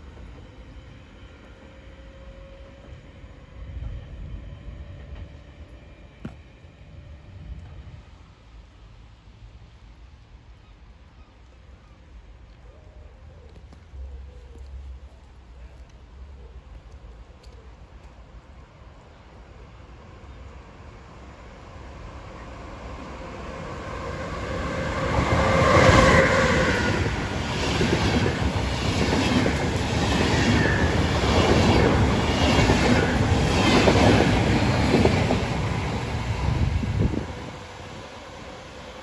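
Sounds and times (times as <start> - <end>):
passenger train passing: 0.0 - 10.6, 14.0 - 39.0
clickety-clack of wheels over rail joints: 25.0 - 37.4.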